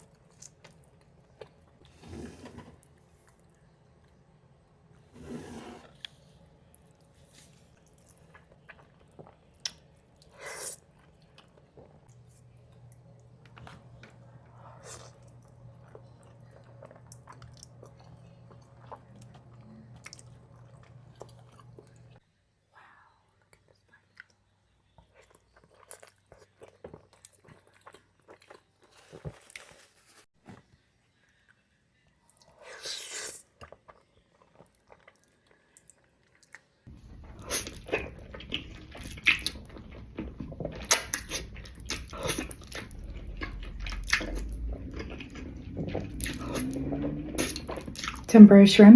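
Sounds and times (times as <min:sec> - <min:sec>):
chewing and biting: 0:25.0 - 0:29.7, 0:32.9 - 0:48.3.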